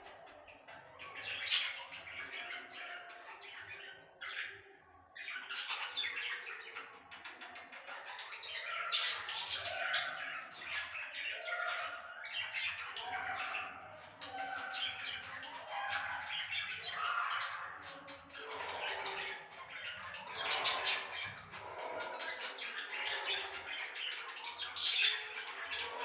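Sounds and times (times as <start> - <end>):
budgerigars chattering: 5.3 - 26.0.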